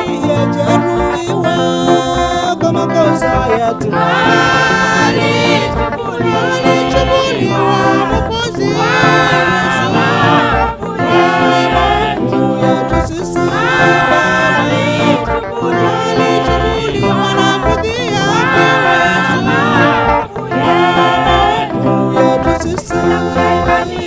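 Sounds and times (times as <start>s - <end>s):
instrumental accompaniment: 0.0s - 24.0s
person singing worship song: 0.0s - 24.0s.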